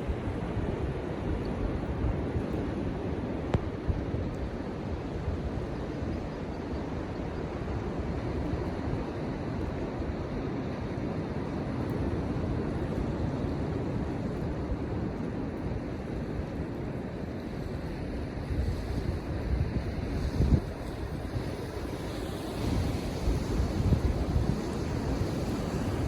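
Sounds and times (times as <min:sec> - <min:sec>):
wind on microphone: 0:00.0 - 0:26.0
surf rushing: 0:17.8 - 0:26.0.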